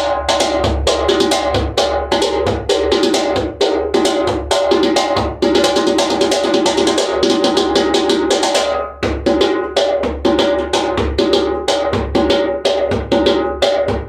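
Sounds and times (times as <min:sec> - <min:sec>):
djembe played by hand: 0:00.0 - 0:14.0.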